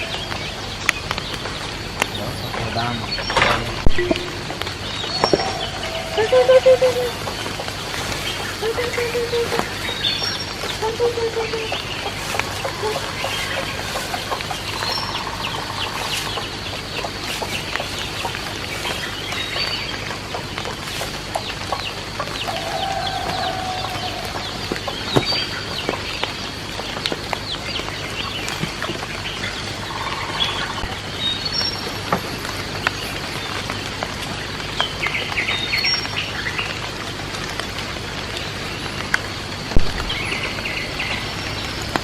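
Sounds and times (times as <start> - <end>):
chickens clucking: 0.0 - 26.3, 28.2 - 31.2
small birds chirping: 0.0 - 42.0
steady hiss: 0.0 - 42.0.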